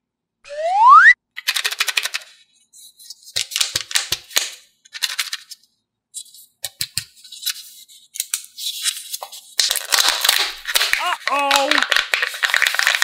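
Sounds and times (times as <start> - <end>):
plastic wrapper crinkling: 9.3 - 13.0.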